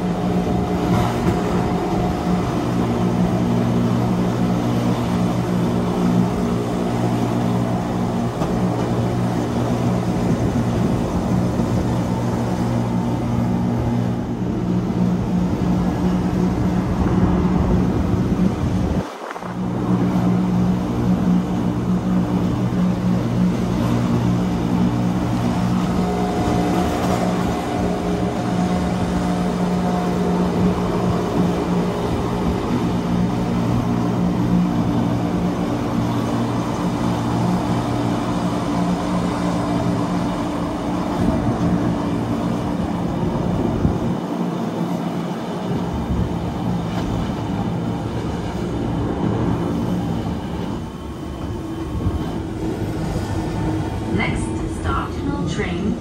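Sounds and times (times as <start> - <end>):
train running on track: 44.3 - 56.0
train motor hum: 47.3 - 56.0.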